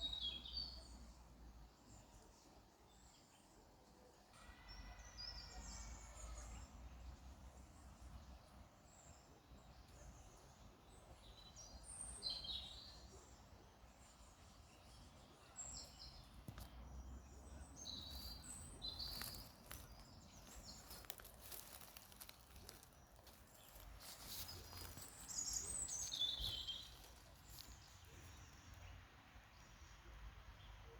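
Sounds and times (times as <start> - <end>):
small birds chirping: 7.6 - 29.0.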